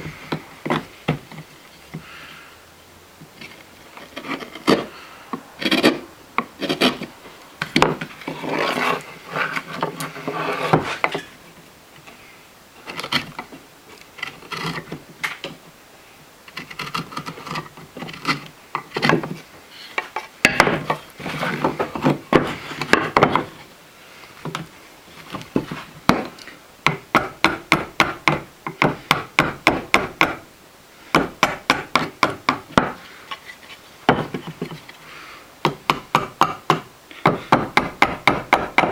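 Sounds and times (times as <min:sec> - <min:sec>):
knife scraping wood: 0:03.3 - 0:05.0, 0:05.6 - 0:07.2, 0:07.9 - 0:11.4, 0:12.8 - 0:15.0, 0:16.5 - 0:23.7.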